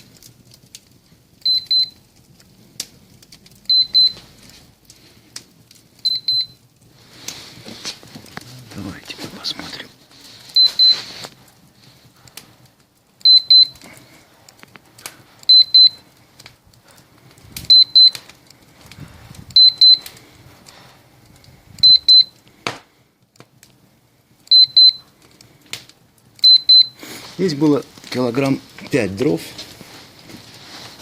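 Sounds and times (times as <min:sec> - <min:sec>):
high double beep: 0:19.6 - 0:20.0, 0:26.4 - 0:27.0.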